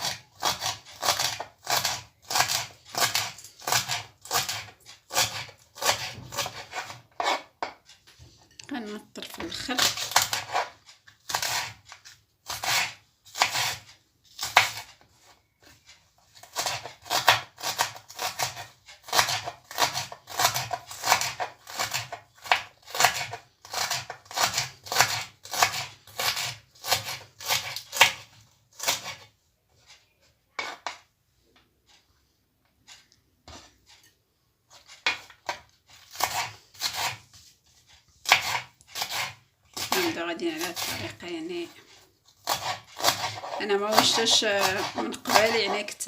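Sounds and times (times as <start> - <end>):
knife chopping on cutting board: 0.0 - 7.8, 11.3 - 14.9, 16.4 - 29.2, 34.7 - 37.3, 38.2 - 41.1, 42.4 - 46.0.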